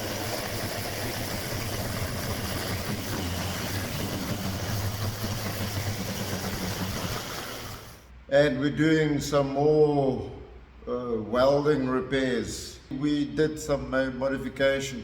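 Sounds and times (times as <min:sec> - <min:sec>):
machine humming and hissing: 0:00.0 - 0:08.1.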